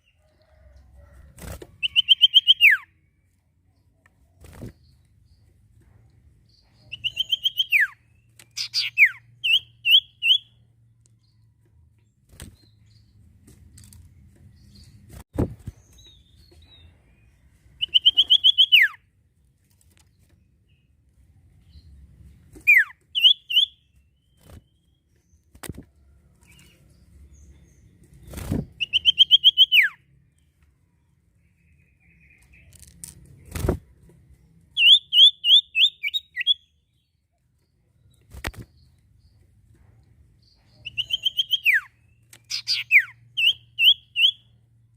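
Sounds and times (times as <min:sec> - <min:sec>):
bird chirps: 0:01.8 - 0:05.5, 0:06.5 - 0:13.2, 0:14.4 - 0:19.1, 0:21.6 - 0:25.7, 0:26.4 - 0:33.0, 0:34.3 - 0:39.5, 0:40.4 - 0:44.7
bird singing: 0:01.8 - 0:05.5, 0:06.4 - 0:13.2, 0:15.8 - 0:19.1, 0:22.6 - 0:33.0, 0:34.3 - 0:39.6, 0:40.4 - 0:44.9.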